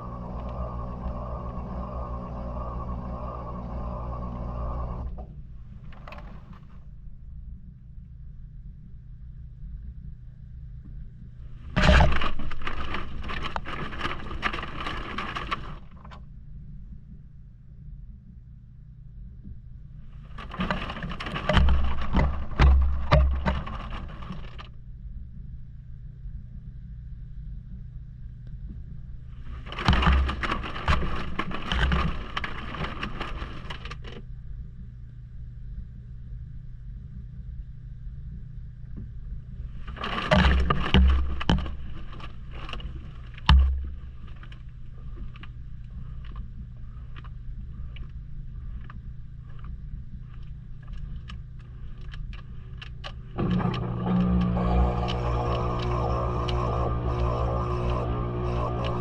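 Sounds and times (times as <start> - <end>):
washing machine motor hum: 0.0 - 7.2, 11.2 - 16.4, 19.8 - 24.8, 28.9 - 34.2, 39.4 - 59.0
water sloshing in drum: 11.4 - 16.2, 20.1 - 24.7, 29.3 - 34.0, 39.6 - 48.0
thumps against drum: 20.4 - 24.5, 29.5 - 33.4
heavy thumps: 29.4 - 33.8.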